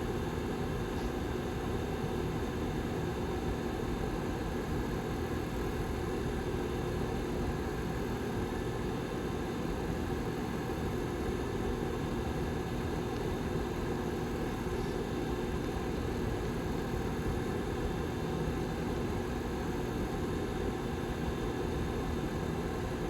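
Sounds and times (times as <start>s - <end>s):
heater fan whirring: 0.0s - 23.0s.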